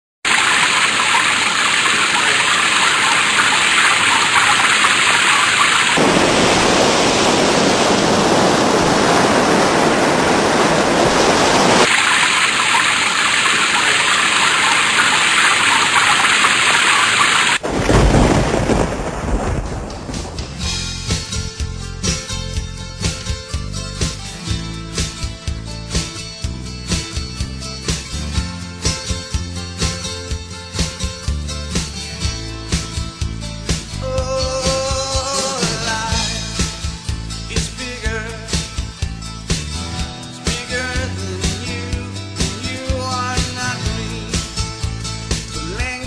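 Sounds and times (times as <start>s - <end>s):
heavy rain hissing: 0.3s - 21.0s
deep thunder rumble: 0.4s - 12.9s, 17.5s - 21.0s.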